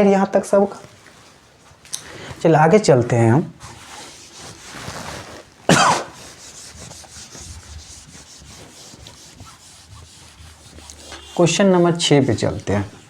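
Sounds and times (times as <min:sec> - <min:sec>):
person clearing throat: 0:05.7 - 0:06.2
pencil scratching on paper: 0:06.1 - 0:13.0.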